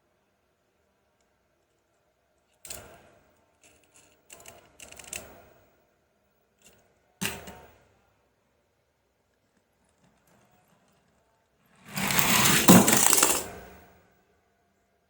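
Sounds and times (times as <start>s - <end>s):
plastic toys knocking together: 11.9s - 13.7s.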